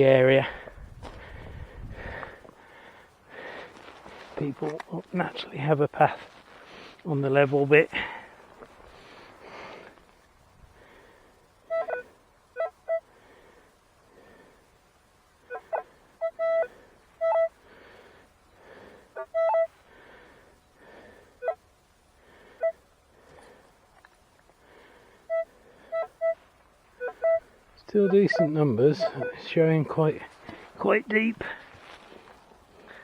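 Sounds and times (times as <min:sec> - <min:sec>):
metal detector beeps: 0:11.7 - 0:12.0, 0:16.3 - 0:17.5, 0:19.4 - 0:19.7, 0:27.0 - 0:27.4, 0:28.0 - 0:29.6.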